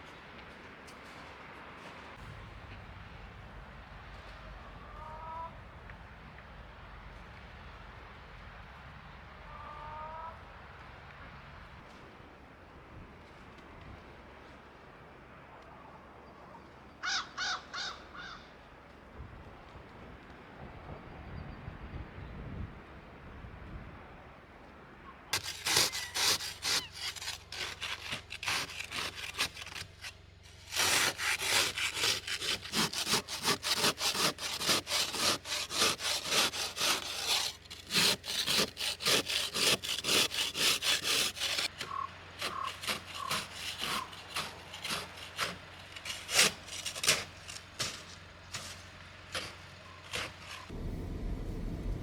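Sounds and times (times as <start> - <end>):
rapid rasping sawing strokes: 25.4 - 50.8.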